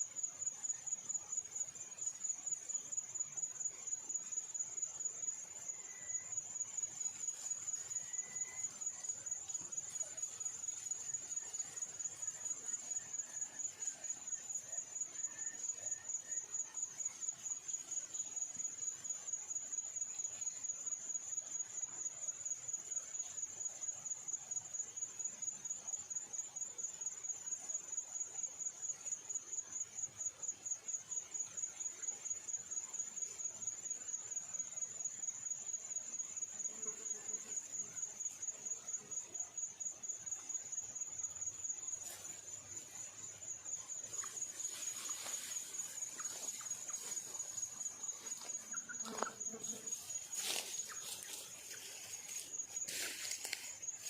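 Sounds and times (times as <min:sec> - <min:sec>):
insect trilling: 0:39.3 - 0:54.0.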